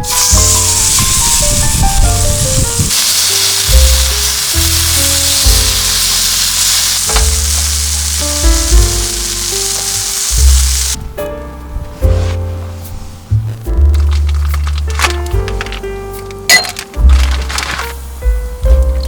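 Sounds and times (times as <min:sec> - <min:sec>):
food sizzling in a pan: 0:00.0 - 0:11.0
background music: 0:00.0 - 0:19.0.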